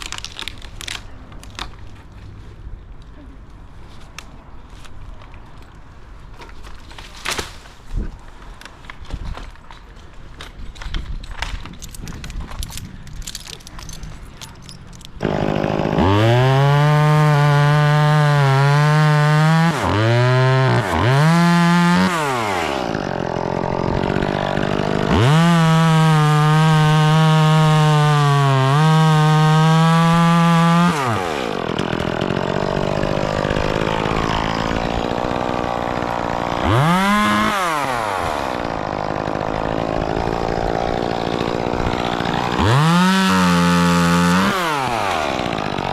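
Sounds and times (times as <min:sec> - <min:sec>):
clicks and rustling: 0:08.4 - 0:15.2
chainsaw revving and idling: 0:15.2 - 0:45.9.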